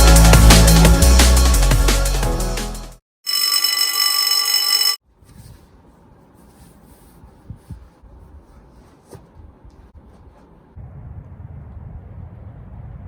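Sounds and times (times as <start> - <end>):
loud electronic ringing tone: 3.3 - 5.0.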